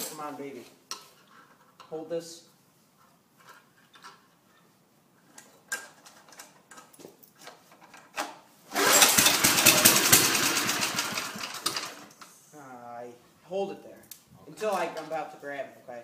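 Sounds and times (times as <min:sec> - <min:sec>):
lawnmower engine running: 0:08.7 - 0:12.1.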